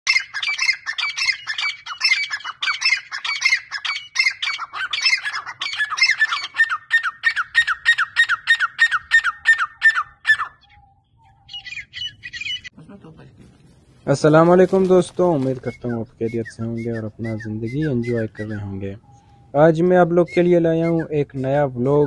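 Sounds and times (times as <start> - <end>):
francolins calling harshly: 0.1 - 12.7, 15.4 - 22.0.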